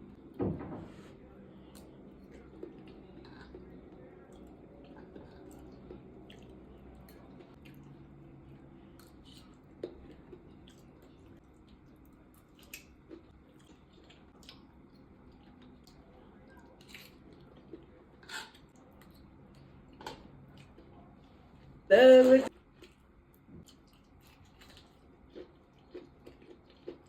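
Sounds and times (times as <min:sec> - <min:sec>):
person chewing food: 0:01.7 - 0:21.3, 0:22.6 - 0:27.0.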